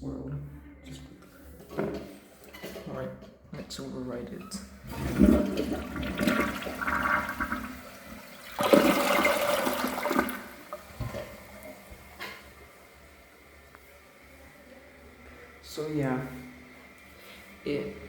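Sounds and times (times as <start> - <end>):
toilet flushing: 4.4 - 13.6.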